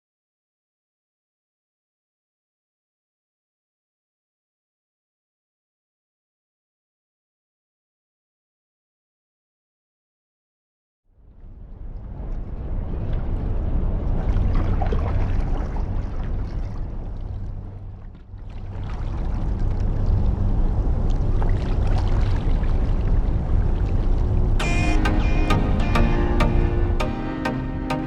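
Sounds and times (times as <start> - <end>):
wind rumble on microphone: 11.2 - 24.6
water splashing around kayak: 12.0 - 24.6
music: 24.6 - 28.0.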